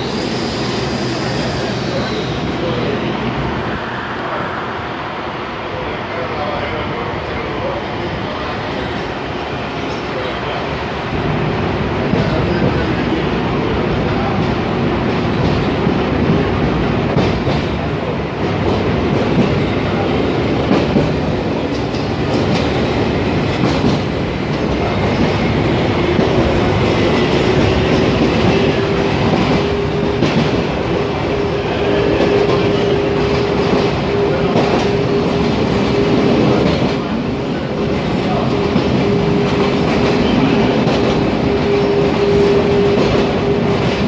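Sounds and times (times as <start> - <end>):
train wheels rumbling on rails: 0.0 - 44.0
clickety-clack over rail joints: 12.0 - 13.2, 13.9 - 44.0.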